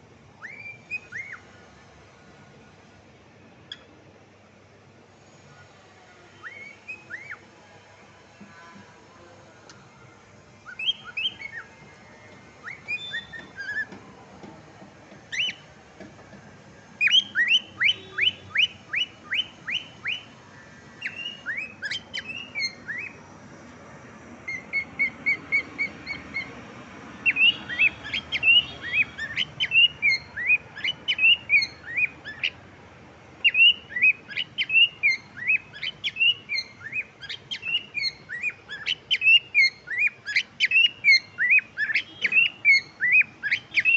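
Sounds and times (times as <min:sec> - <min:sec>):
cockatiel chirping: 0:00.4 - 0:01.4, 0:03.7 - 0:03.9, 0:06.4 - 0:07.4, 0:10.6 - 0:11.7, 0:12.6 - 0:13.9, 0:15.3 - 0:15.6, 0:17.0 - 0:20.3, 0:21.0 - 0:23.2, 0:24.4 - 0:26.6, 0:27.2 - 0:32.6, 0:33.4 - 0:43.9.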